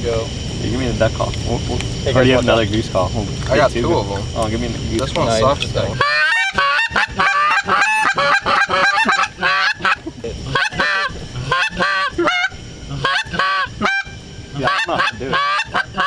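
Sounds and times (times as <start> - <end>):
goose call honking: 5.8 - 16.0.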